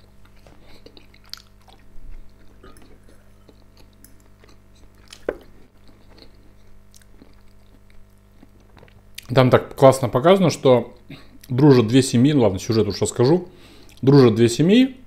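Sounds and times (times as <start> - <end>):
close-up chewing: 0.0 - 9.3
lamp electrical hum: 0.0 - 15.0.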